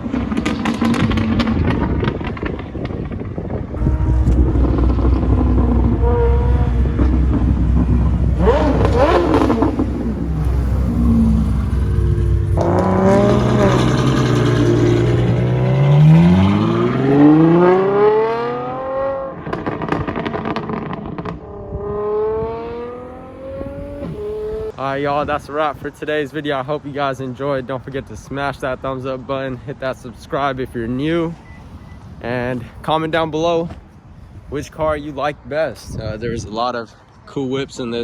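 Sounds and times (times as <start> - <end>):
sports car engines accelerating: 0.0 - 24.8
low rumble: 1.0 - 17.0.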